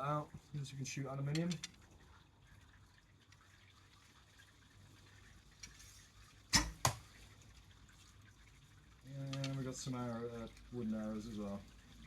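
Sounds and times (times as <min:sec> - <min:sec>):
arrow knocking against bow: 0:06.6 - 0:07.0.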